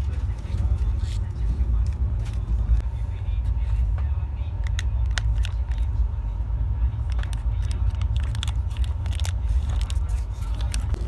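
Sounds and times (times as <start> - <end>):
train coach rumble: 0.0 - 11.0
sharp clicks and rattles: 7.1 - 11.0.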